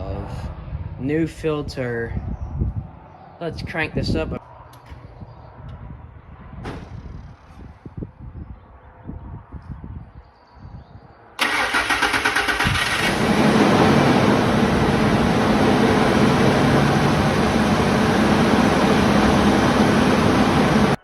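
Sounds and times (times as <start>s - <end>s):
truck engine cranking on starter: 11.4s - 21.0s
truck engine idling: 11.4s - 21.0s.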